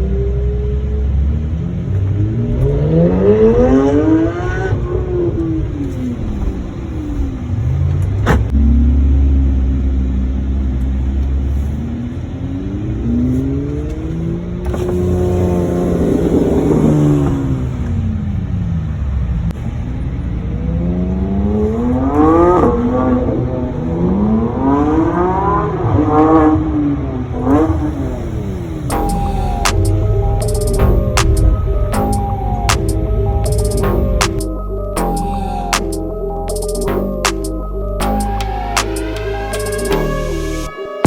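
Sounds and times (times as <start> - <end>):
car engines revving: 0.0 - 40.7.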